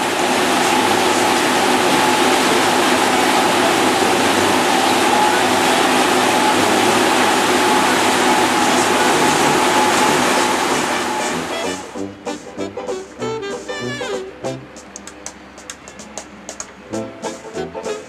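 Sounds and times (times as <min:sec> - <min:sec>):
steam whistle blowing: 0:00.0 - 0:14.3.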